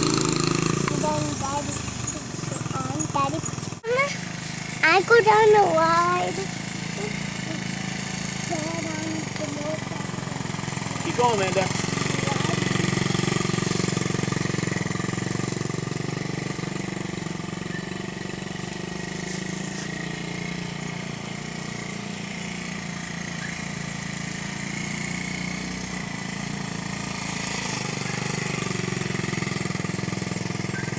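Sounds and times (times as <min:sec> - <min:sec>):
small motorcycle engine running: 0:00.0 - 0:30.9.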